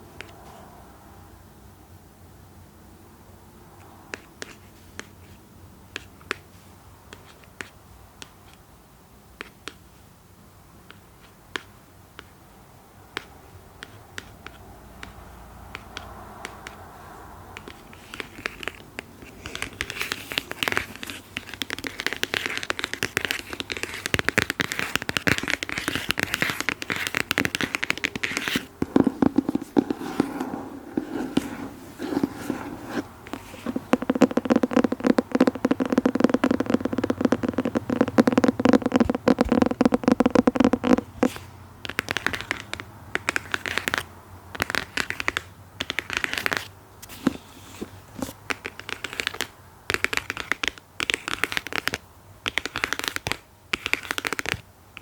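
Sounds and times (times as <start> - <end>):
close tapping: 17.6 - 44.0.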